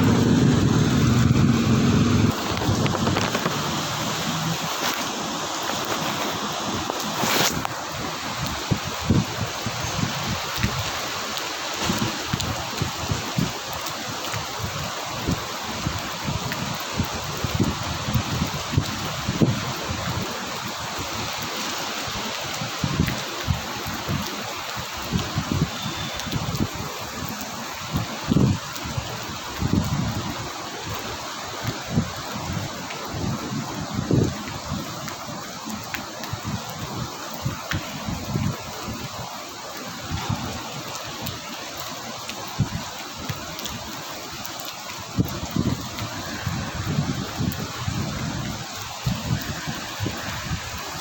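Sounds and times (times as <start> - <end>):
low thumps: 0.0 - 3.8
heavy rain hissing: 0.0 - 51.0.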